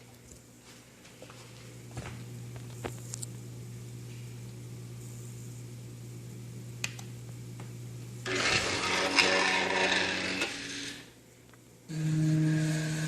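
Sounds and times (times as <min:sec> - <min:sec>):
faint steady hum: 0:00.0 - 0:13.0
small motor grinding whir: 0:08.2 - 0:11.1, 0:11.9 - 0:13.0.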